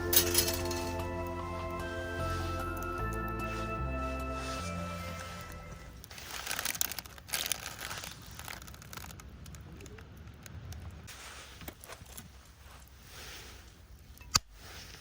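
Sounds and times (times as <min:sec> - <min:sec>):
crinkling rustling handling: 0:02.3 - 0:10.2, 0:11.1 - 0:13.0.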